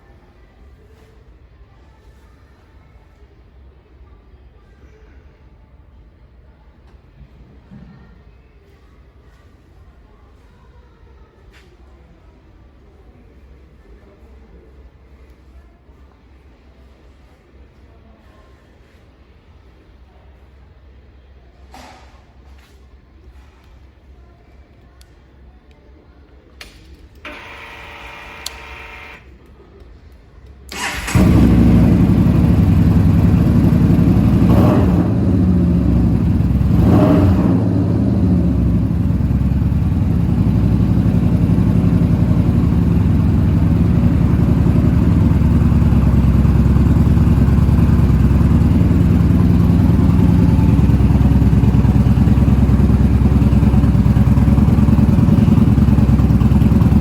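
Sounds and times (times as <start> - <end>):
starter motor whir: 27.3 - 29.2, 30.7 - 32.2
motorcycle engine revving and idling: 30.8 - 57.0.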